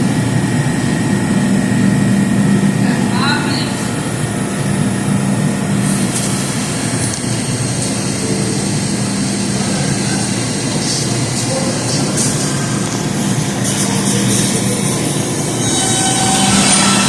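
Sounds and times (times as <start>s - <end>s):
subway train rumbling on tracks: 0.0s - 17.0s
high hiss from train wheels: 5.7s - 17.0s.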